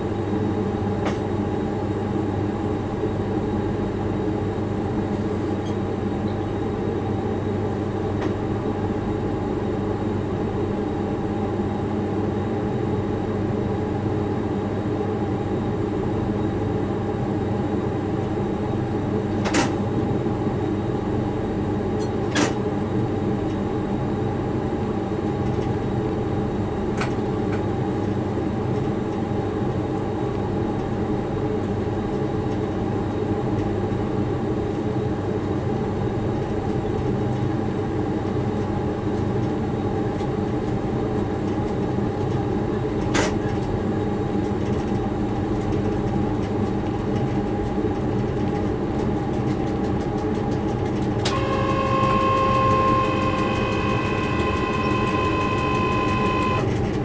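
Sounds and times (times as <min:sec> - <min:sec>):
locomotive motor hum: 0:51.2 - 0:57.0.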